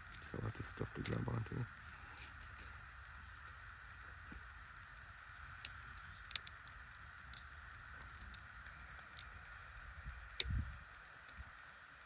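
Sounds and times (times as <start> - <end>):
steady high hiss: 0.0 - 12.0
sticks snapping: 5.5 - 6.6.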